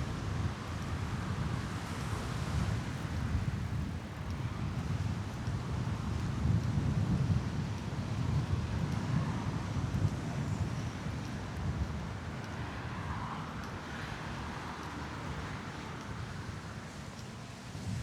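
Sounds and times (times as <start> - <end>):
city traffic hum: 12.1 - 17.5.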